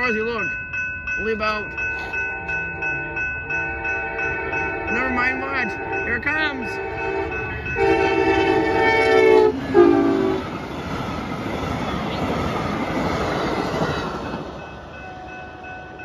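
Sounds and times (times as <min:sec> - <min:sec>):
crossing warning bell ringing: 0:00.0 - 0:16.0
train cars rushing past: 0:00.0 - 0:16.0
train horn blasts: 0:03.6 - 0:04.9, 0:05.6 - 0:10.5.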